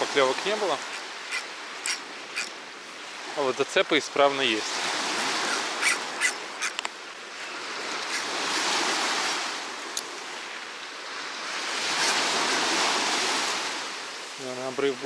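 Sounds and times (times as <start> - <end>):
waves washing onto beach: 0.0 - 15.0.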